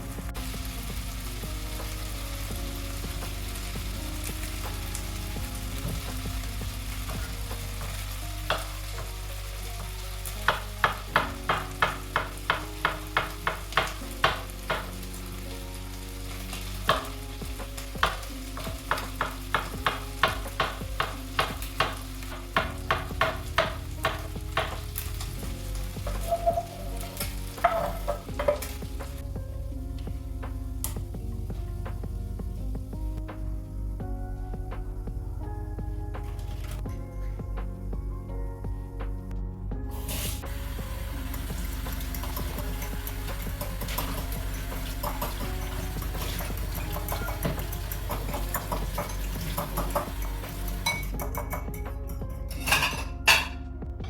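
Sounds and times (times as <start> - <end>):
food sizzling in a frying pan: 0.0 - 29.3, 39.9 - 51.3
utensil scraping a pan: 16.3 - 29.2, 41.3 - 53.6.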